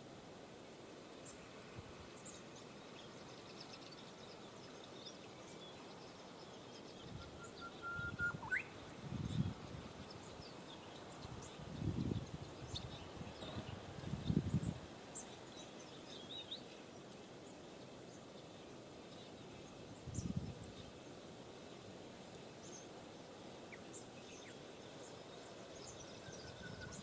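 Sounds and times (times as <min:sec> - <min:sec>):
small birds chirping: 0:01.1 - 0:27.0
drawn-out whistle: 0:07.4 - 0:08.7.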